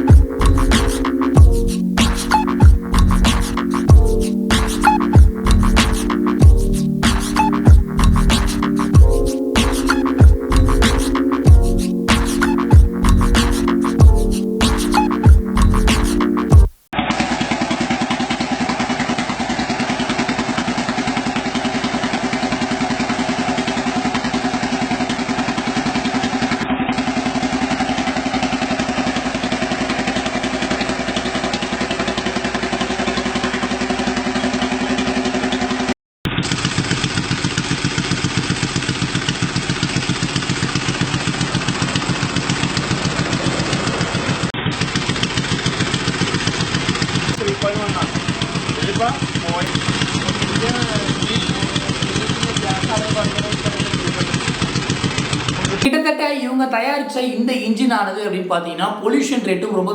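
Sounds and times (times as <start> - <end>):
engine idling: 17.6 - 55.8.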